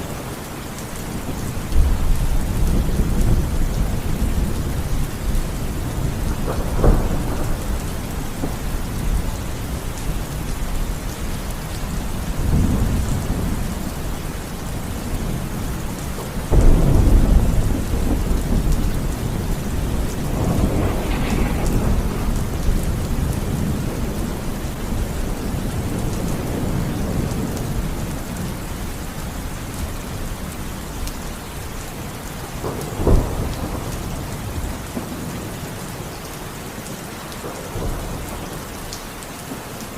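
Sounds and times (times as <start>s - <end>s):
steady rain: 0.0s - 39.9s
thunder cracks and rumbles: 1.1s - 11.1s, 11.9s - 30.3s, 32.5s - 35.8s.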